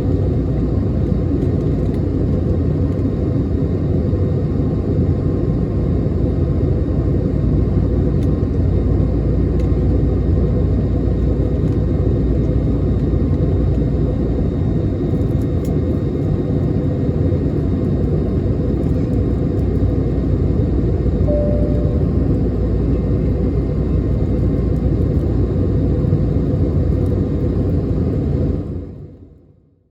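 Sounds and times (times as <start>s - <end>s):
airplane cabin rumble: 6.5s - 28.7s
faint steady hum: 21.2s - 24.2s.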